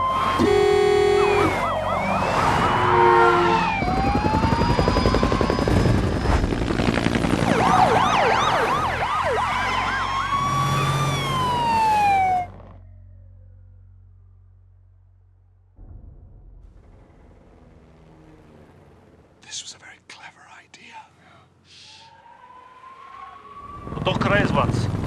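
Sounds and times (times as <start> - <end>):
dense traffic noise: 0.0 - 4.6
police sirens wailing: 0.0 - 6.3, 7.3 - 12.8
car horn blasts: 0.3 - 3.8.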